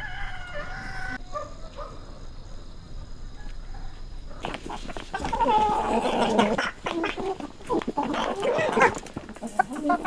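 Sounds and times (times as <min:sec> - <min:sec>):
rooster crowing: 0:00.0 - 0:01.3
faint farmyard animal sounds: 0:00.0 - 0:10.0.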